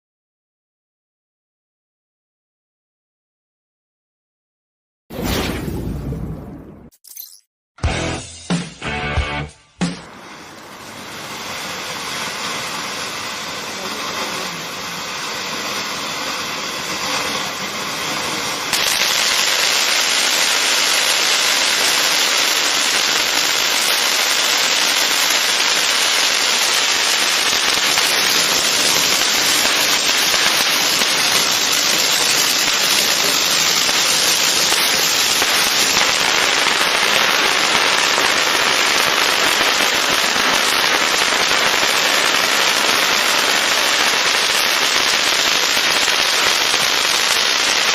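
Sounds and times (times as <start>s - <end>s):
firework fountain hissing and crackling: 9.9s - 47.9s.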